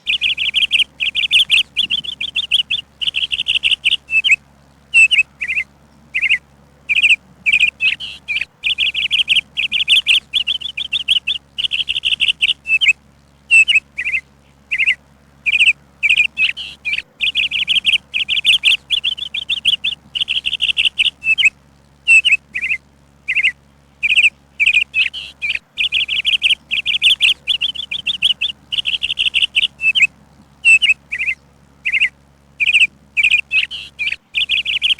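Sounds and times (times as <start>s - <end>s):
faint low hum: 0.0s - 34.9s
songbird singing: 0.0s - 34.9s.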